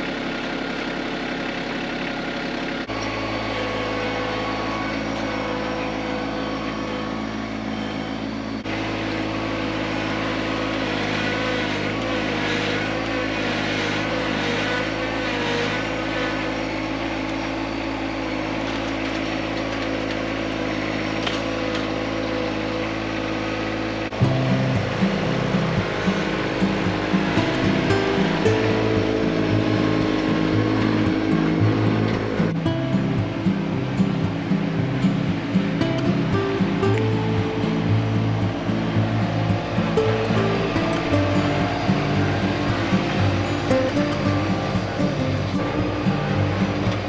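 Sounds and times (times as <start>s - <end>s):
tractor diesel engine running: 24.1s - 47.0s.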